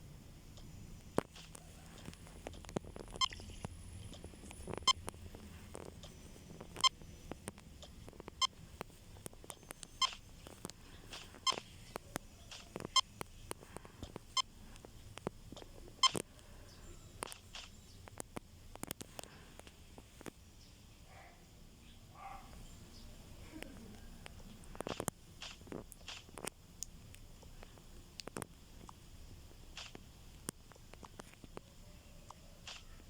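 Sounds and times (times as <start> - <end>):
barcode scanner beeping: 3.0 - 3.7, 4.7 - 5.1, 8.3 - 8.6, 9.5 - 10.5, 11.4 - 11.7.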